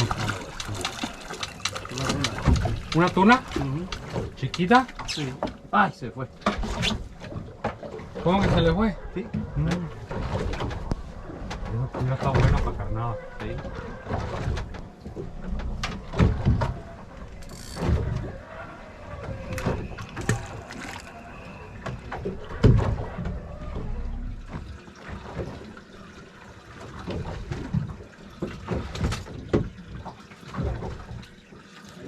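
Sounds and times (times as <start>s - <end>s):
low thumps and knocks: 0.0s - 5.6s
water sloshing around boat: 0.0s - 32.0s.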